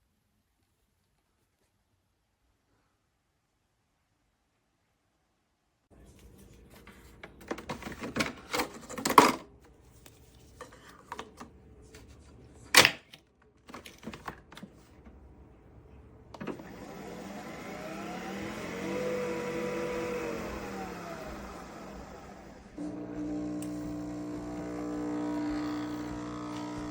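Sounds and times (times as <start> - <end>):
coffee machine motor whine: 16.4 - 26.9.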